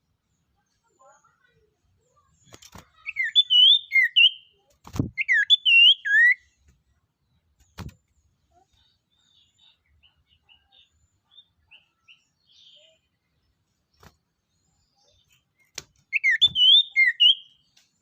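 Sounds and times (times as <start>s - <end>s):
songbird chirping and whistling: 3.0s - 6.6s, 15.0s - 17.8s.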